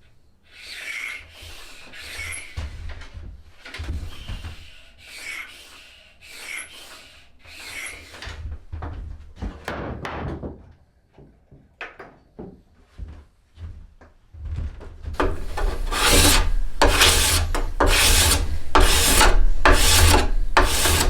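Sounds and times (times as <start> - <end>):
hand tool shaving wood: 15.2 - 21.0.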